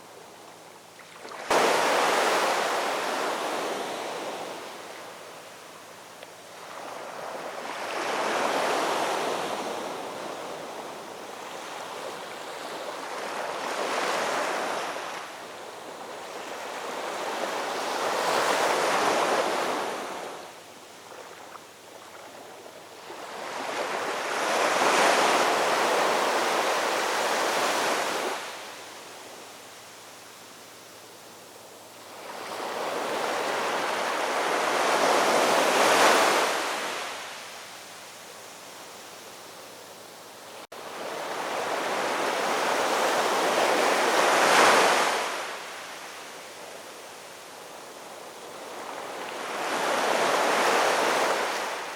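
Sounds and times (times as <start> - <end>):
ocean waves breaking: 1.2 - 4.9.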